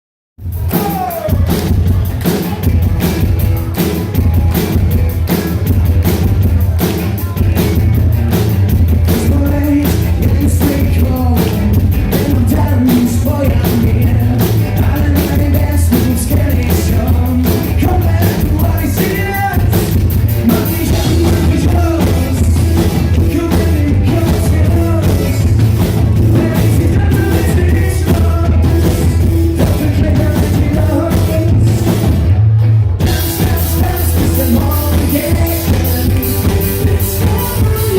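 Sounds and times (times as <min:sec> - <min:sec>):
live rock band: 0:00.4 - 0:37.9
person singing: 0:00.6 - 0:02.8, 0:08.9 - 0:32.1, 0:33.0 - 0:37.9.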